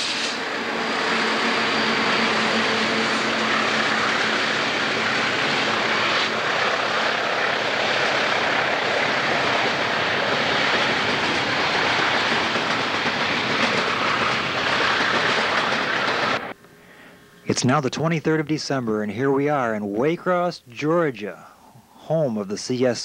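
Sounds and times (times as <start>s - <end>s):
freight train wheels on rails: 0.0s - 16.6s.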